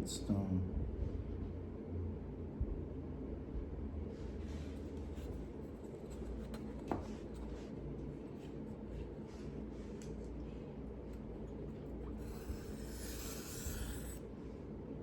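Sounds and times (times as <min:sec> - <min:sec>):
knife scraping on whetstone: 0:12.1 - 0:14.2.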